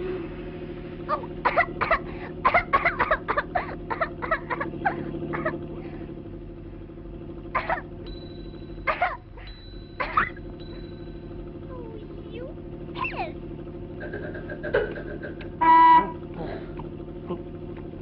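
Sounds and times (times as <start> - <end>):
steady low hum: 0.0 - 18.0
cough-like vocal bursts: 1.4 - 5.6, 7.6 - 7.9, 8.9 - 9.2, 10.0 - 10.4.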